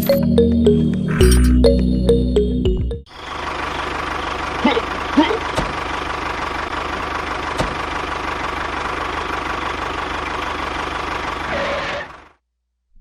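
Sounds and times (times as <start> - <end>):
small engine running: 3.1 - 12.4.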